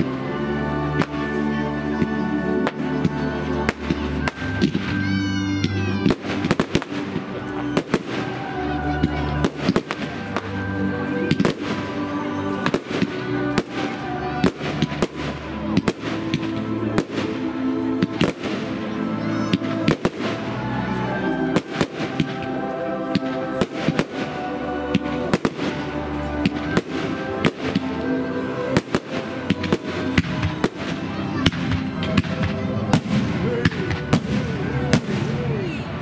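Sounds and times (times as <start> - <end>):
fireworks bangs: 3.0 - 17.4, 19.4 - 20.6, 21.5 - 28.0.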